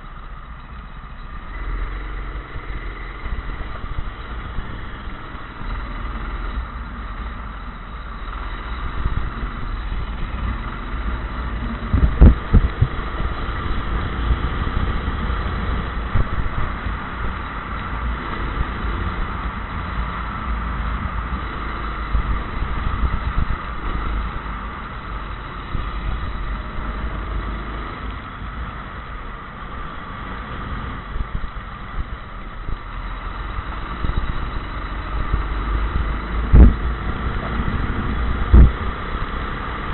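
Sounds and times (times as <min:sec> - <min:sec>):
racing kart engine whining: 0:00.0 - 0:39.9.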